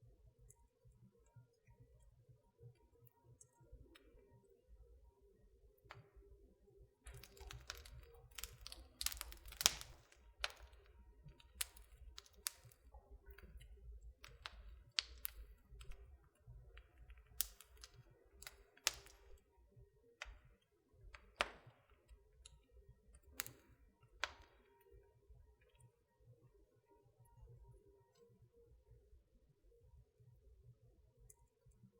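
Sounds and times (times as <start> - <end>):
wood fire crackling and popping: 7.0 - 19.6, 20.2 - 24.8.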